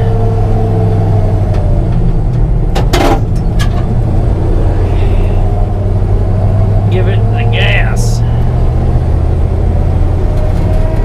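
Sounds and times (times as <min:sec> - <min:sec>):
noisy clatter: 0:01.5 - 0:04.2.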